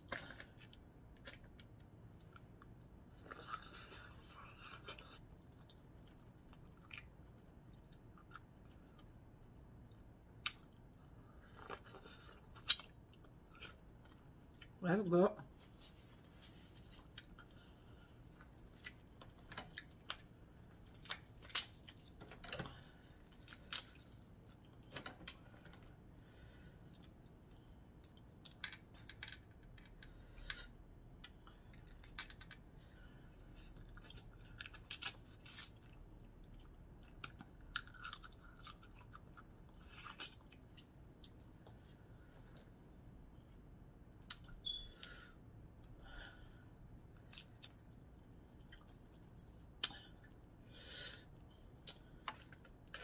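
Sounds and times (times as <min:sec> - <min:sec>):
chewing: 0:00.1 - 0:09.2.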